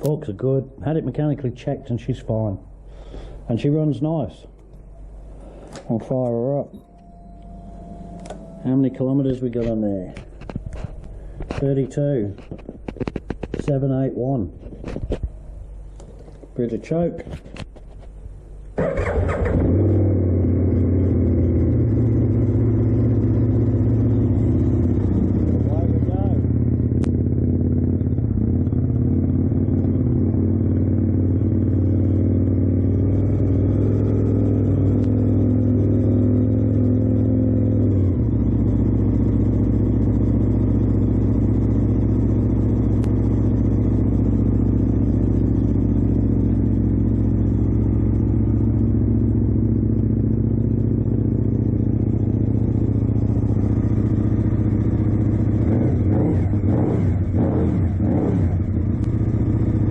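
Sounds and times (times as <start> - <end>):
motorcycle engine idling: 18.4 - 59.9.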